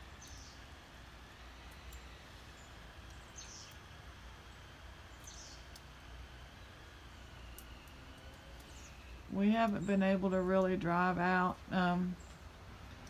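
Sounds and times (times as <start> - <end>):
small birds chirping: 0.0 - 0.8, 1.4 - 13.0.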